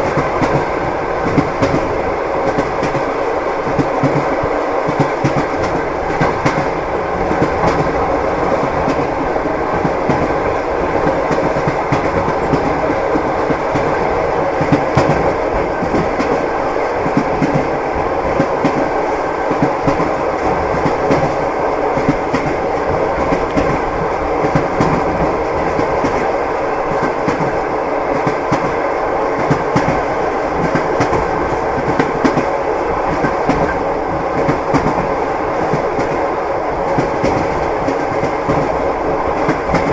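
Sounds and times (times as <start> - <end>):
train wheels clattering: 0.0 - 39.9.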